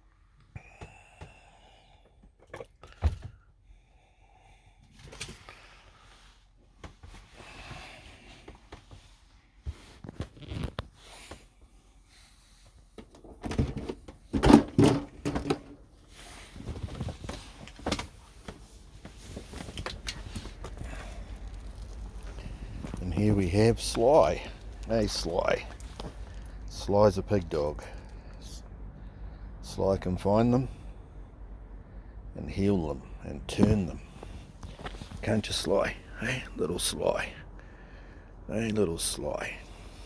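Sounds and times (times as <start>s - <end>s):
knocks thumps and clicks: 13.0s - 15.8s.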